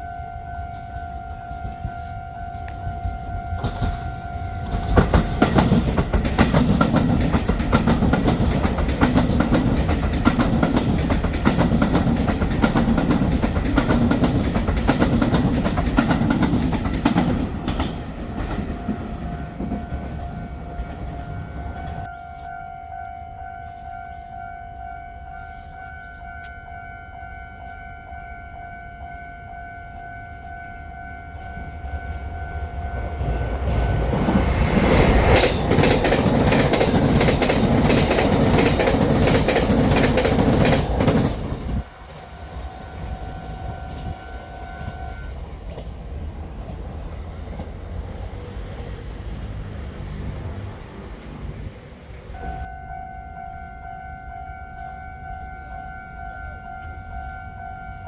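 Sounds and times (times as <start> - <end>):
steady warning tone: 0.0 - 45.8, 52.4 - 58.0
train wheels clattering: 3.6 - 22.1, 33.0 - 44.2.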